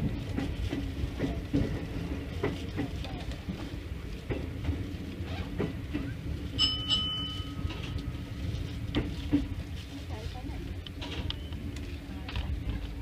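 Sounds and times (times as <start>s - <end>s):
electric train rumble: 0.0s - 13.0s
train wheel clicks: 0.2s - 9.8s, 10.6s - 13.0s
high ringing tone: 6.6s - 8.2s.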